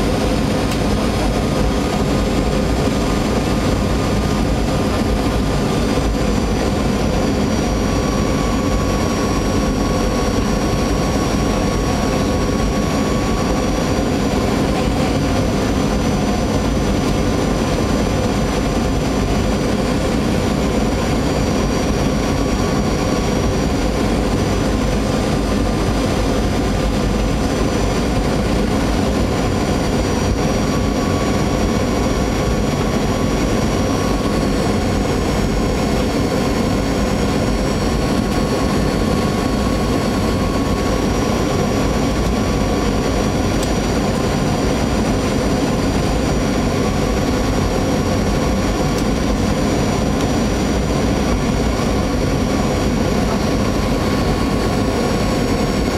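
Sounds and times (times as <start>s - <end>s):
engine whine tones: 0.0s - 55.9s
jet engine and airflow noise: 0.0s - 55.9s.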